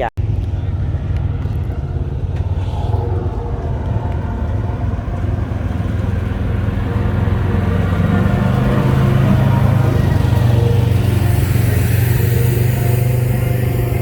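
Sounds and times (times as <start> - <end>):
car engine idling: 0.2 - 14.0.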